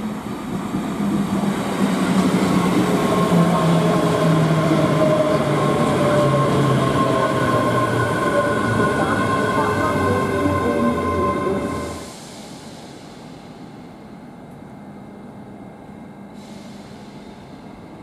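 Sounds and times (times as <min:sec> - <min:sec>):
train traction whine: 0:00.0 - 0:14.1.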